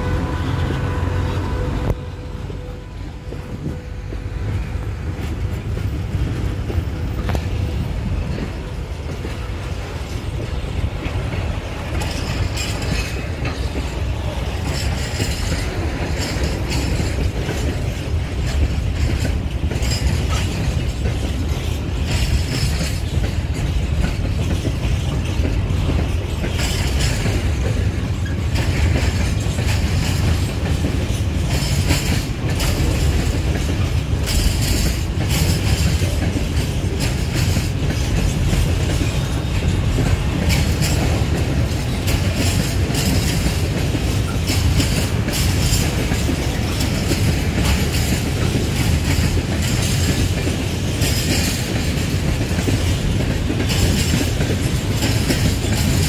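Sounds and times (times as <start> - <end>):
clickety-clack over rail joints: 0.0 - 56.0
freight train wheels rumbling: 0.0 - 56.0.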